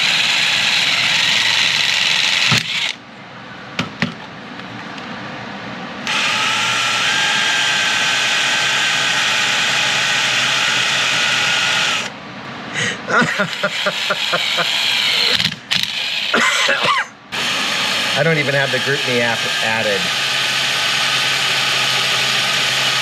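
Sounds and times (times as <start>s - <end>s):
power drill whining: 0.0s - 3.0s, 6.0s - 12.1s, 13.3s - 23.0s
drill bit clicks: 0.1s - 3.0s, 6.1s - 8.0s, 13.5s - 16.3s.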